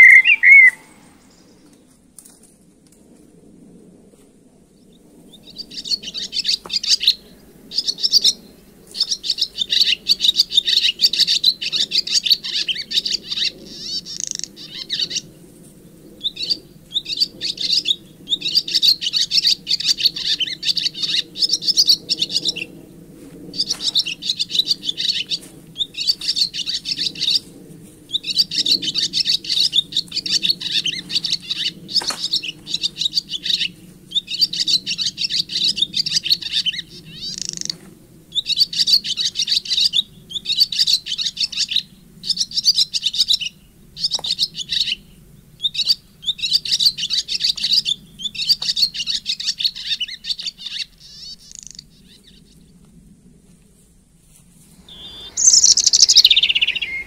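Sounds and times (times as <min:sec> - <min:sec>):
songbird singing: 0:00.0 - 0:02.0, 0:04.8 - 0:15.3, 0:23.5 - 0:27.5, 0:28.1 - 0:52.8, 0:54.7 - 0:57.0.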